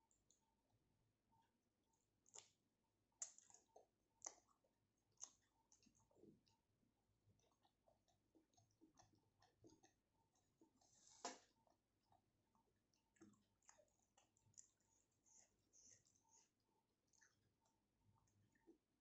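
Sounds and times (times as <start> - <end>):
lip smacks and chewing: 2.2 - 19.0
wet mouth clicks: 3.2 - 4.5.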